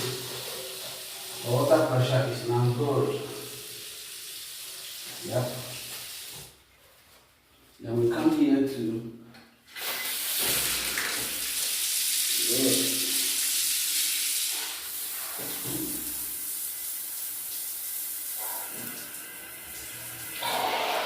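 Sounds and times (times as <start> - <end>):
water running hard from tap: 0.0 - 6.5, 9.7 - 21.0.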